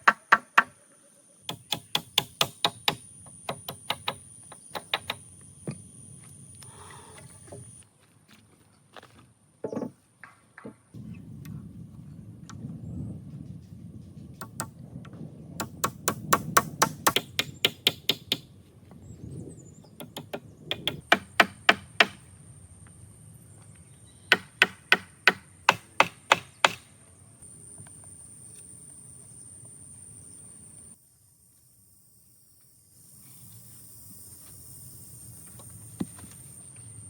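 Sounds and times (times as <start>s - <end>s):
sharp hammer-like knocks: 1.5s - 5.2s, 14.4s - 14.7s, 15.6s - 18.4s, 20.0s - 22.2s, 24.3s - 26.9s.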